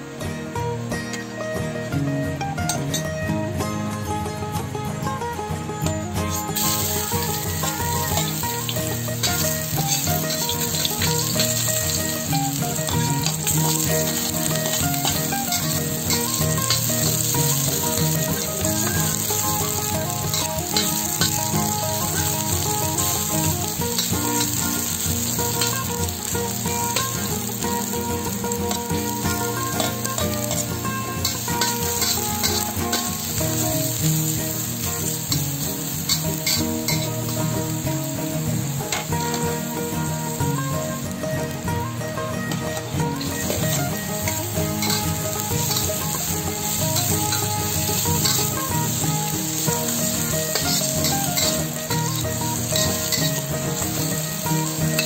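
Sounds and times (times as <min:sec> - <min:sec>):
food sizzling in hot oil: 0:06.3 - 0:55.0
spatula stirring in wok: 0:06.5 - 0:37.6, 0:43.4 - 0:55.0.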